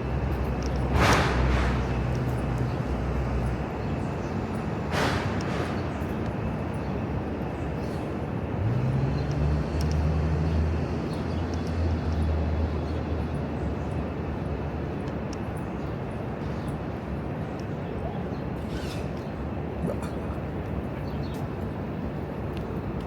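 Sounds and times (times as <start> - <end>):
heavy vehicle engine hum: 0.0 - 15.2
street traffic rumble: 0.0 - 23.0.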